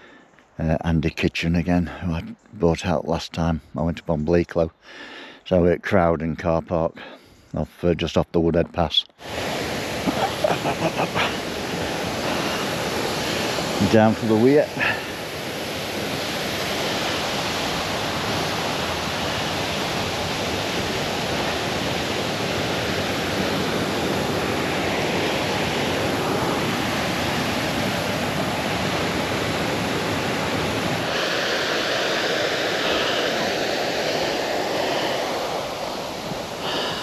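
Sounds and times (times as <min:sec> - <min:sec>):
water rushing over a weir: 0:09.2 - 0:37.0.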